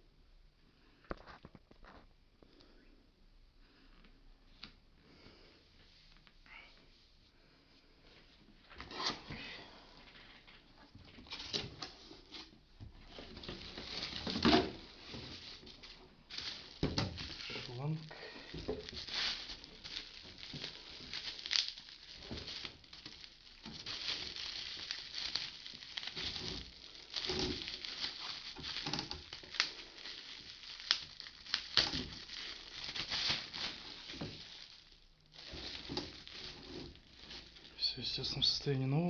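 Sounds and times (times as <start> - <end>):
plastic packaging crinkling: 11.0 - 38.8.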